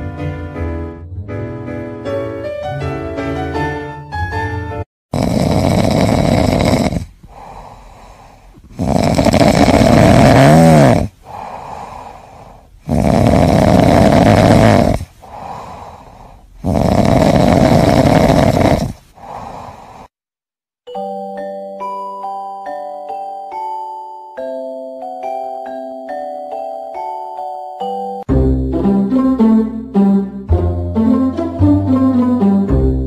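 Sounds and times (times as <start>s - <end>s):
cat snoring: 5.1s - 20.1s.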